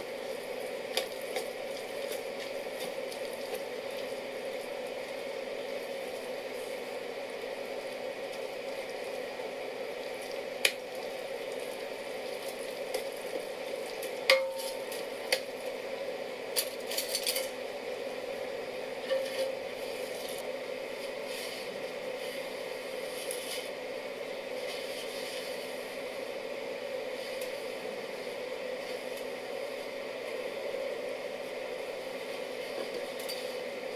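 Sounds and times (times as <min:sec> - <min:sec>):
simmering hiss: 0:00.0 - 0:33.9
ringing knock on pot: 0:14.3 - 0:14.7.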